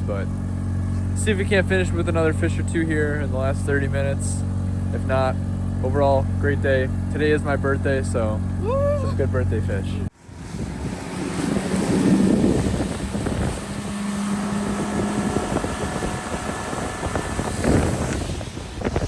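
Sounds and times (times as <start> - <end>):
outboard motor running: 0.0 - 19.0
wind buffeting microphone: 10.2 - 19.0.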